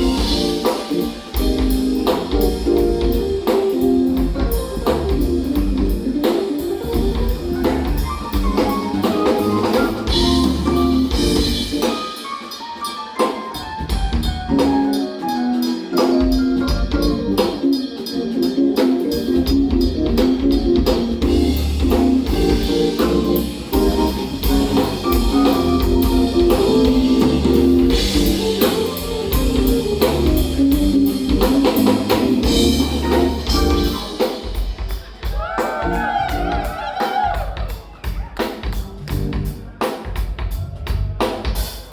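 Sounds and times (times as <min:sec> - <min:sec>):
electric bass: 0:00.0 - 0:11.9, 0:13.8 - 0:15.0, 0:16.2 - 0:17.8, 0:18.5 - 0:34.1, 0:38.7 - 0:39.8, 0:40.4 - 0:41.3
drum kit: 0:00.0 - 0:41.9
keyboards: 0:00.0 - 0:41.9.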